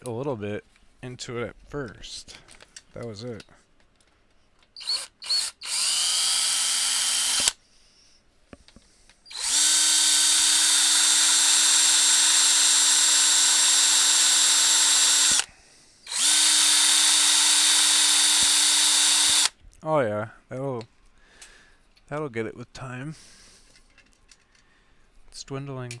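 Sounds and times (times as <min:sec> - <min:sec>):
grinding bit on rivet head: 0:04.6 - 0:07.6
power drill whining: 0:04.8 - 0:07.6, 0:09.3 - 0:19.6.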